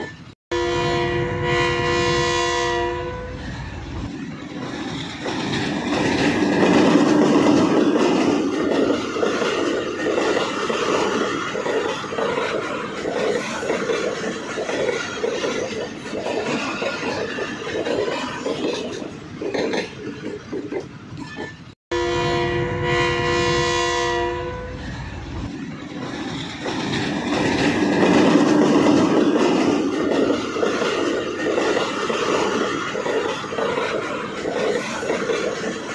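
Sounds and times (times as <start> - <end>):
train horn: 0.5 - 3.4, 21.9 - 24.9
train wheels clattering on rails: 3.4 - 21.8, 24.8 - 35.9.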